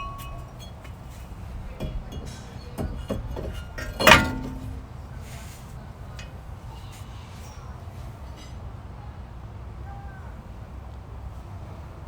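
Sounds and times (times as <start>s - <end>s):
metal tools clinking: 0.0s - 5.6s
loud ringing metal clank: 0.0s - 6.4s.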